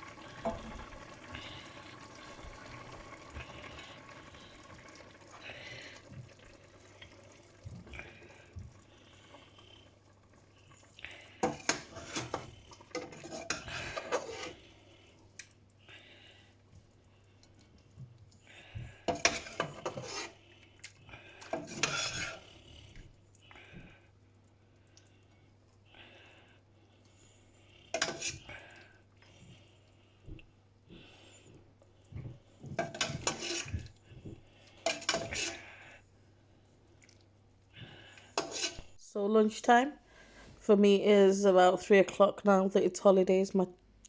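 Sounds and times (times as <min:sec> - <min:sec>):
plates and cutlery clattering: 0:32.7 - 0:33.9, 0:34.9 - 0:35.6.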